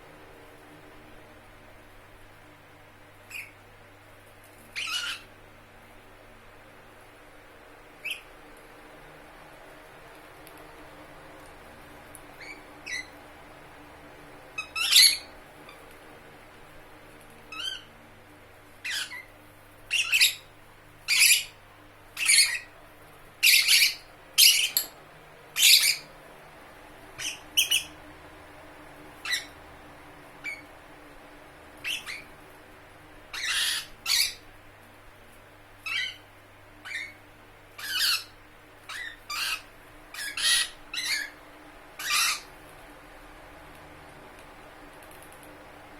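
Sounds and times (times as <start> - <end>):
lovebird squawking: 3.3 - 3.6, 4.8 - 5.3, 14.6 - 15.3, 18.8 - 19.3, 19.9 - 20.5, 21.1 - 21.6, 22.2 - 22.7, 23.4 - 24.9, 25.6 - 26.1, 27.2 - 28.0, 29.2 - 29.6, 31.8 - 32.3, 33.3 - 34.4, 35.8 - 36.2, 36.8 - 37.2, 37.8 - 41.4, 42.0 - 42.5.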